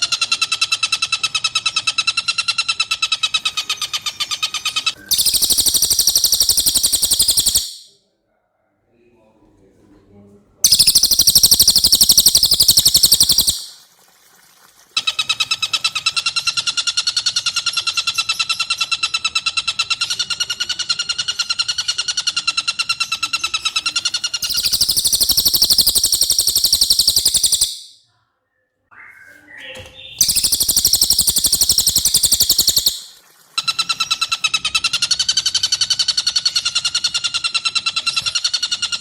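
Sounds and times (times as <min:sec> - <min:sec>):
bird's high rapid trill: 0:04.8 - 0:07.9, 0:10.7 - 0:13.8, 0:24.4 - 0:28.0, 0:30.1 - 0:34.8.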